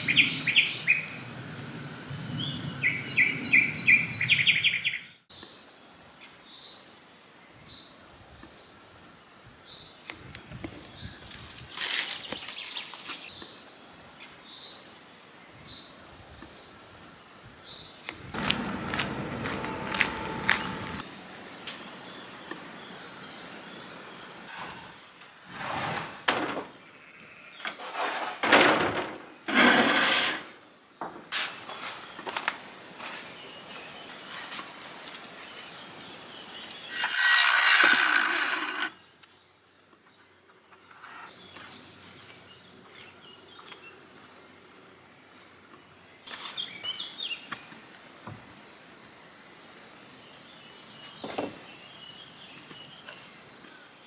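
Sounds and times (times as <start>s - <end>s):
high-pitched insect trill: 30.4s - 39.8s.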